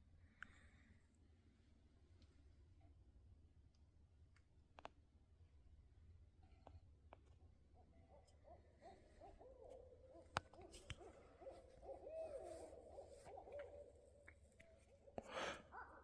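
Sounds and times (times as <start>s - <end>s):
owls hooting: 7.8s - 16.0s.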